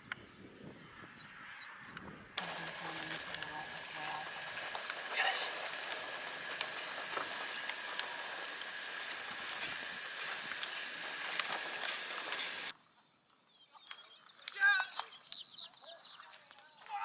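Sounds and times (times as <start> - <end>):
rain falling steadily: 2.4 - 12.7.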